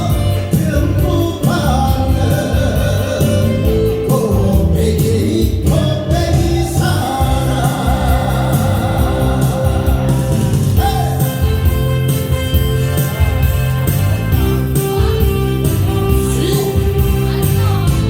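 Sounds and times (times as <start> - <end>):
person singing: 0.0 - 11.7
band accompaniment: 0.0 - 18.0.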